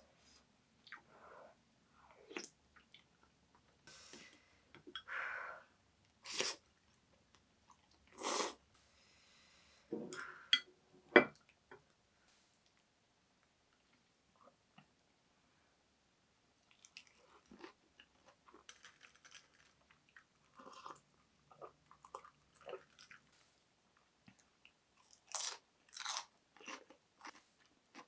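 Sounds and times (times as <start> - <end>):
person chewing food: 16.7 - 23.3, 24.3 - 28.0.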